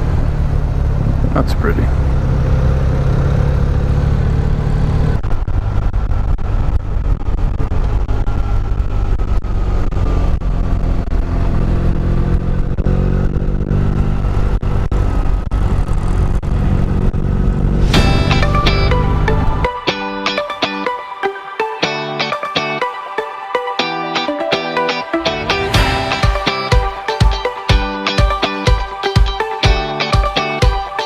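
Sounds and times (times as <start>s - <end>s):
low wind rumble: 0.0s - 9.8s, 14.1s - 20.0s.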